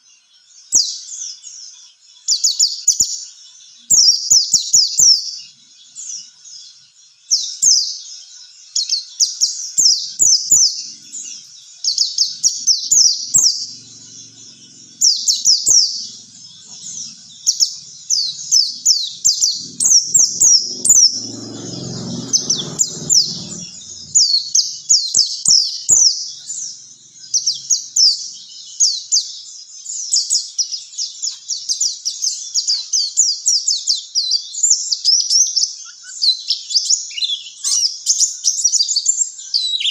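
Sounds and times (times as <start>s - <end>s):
bird chirping song: 0.0s - 39.9s
low rumble: 12.3s - 24.8s.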